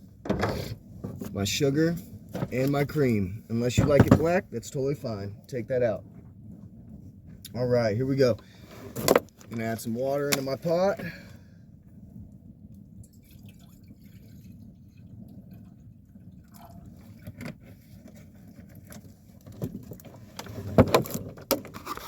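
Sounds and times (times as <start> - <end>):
water pouring into coffee pot: 13.0 - 16.9.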